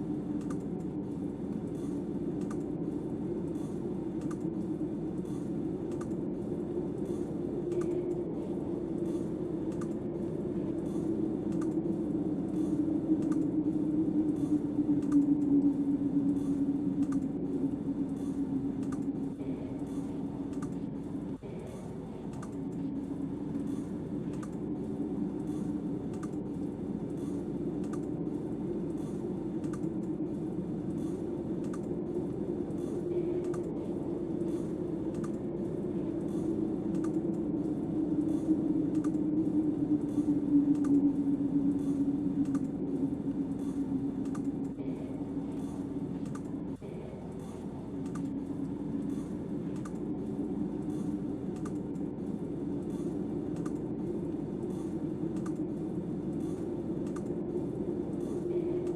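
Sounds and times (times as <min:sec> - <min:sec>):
wind howling: 0:00.0 - 0:58.9
faint light clicks: 0:09.7 - 0:10.0.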